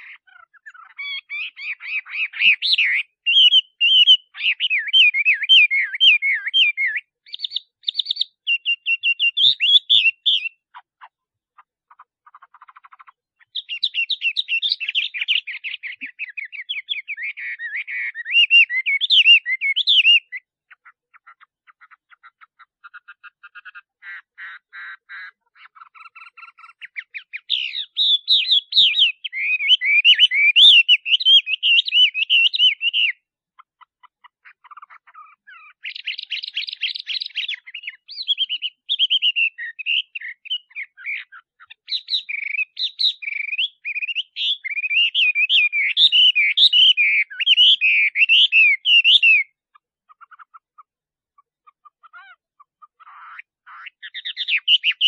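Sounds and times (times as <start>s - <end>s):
bird singing whistled phrases: 0.0s - 10.6s, 13.4s - 20.5s, 26.2s - 33.2s, 35.7s - 49.6s, 53.8s - 55.0s.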